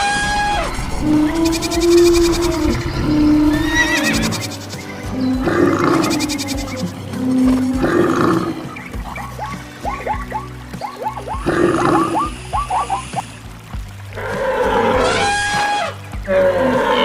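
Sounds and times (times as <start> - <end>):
animal cries: 0.0 - 6.9, 14.3 - 17.0
rough animal calls: 0.0 - 13.5, 14.2 - 17.0
music: 0.0 - 17.0.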